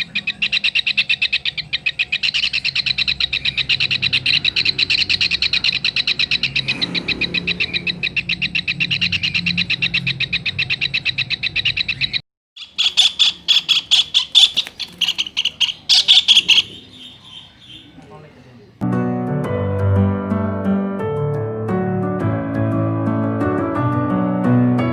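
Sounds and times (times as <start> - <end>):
kingfisher calling: 0.0 - 18.8.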